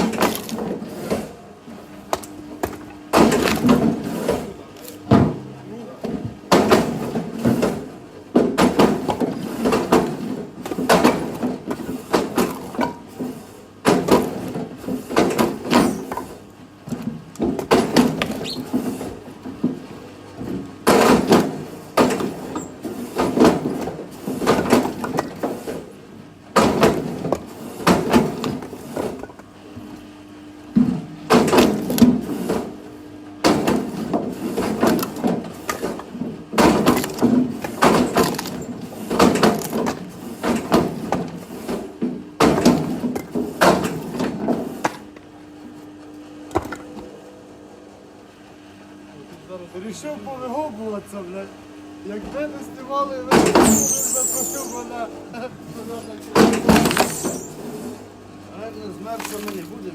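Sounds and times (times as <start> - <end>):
split wood clattering: 34.6 - 41.4, 59.1 - 59.8.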